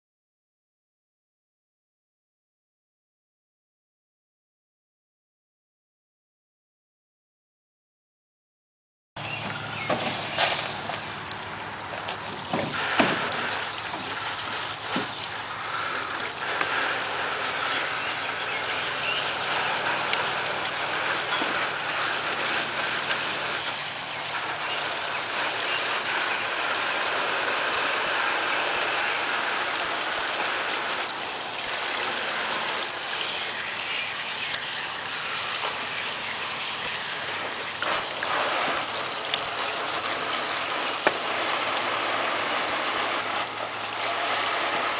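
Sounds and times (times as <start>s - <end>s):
hose nozzle spraying water: 9.2s - 44.9s
clicks and splashes: 9.5s - 44.9s.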